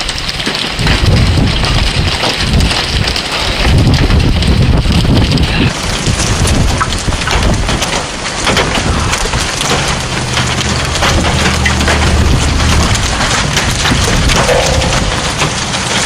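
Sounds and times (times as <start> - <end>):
heavy rain and hail pelting: 0.0 - 16.0
low steady hum: 9.9 - 16.0.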